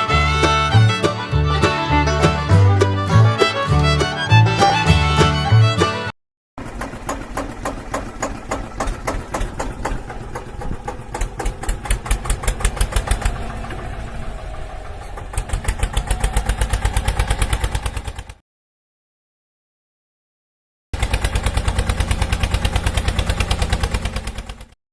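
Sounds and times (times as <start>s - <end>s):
small engine chugging: 6.6s - 18.4s, 21.0s - 24.8s.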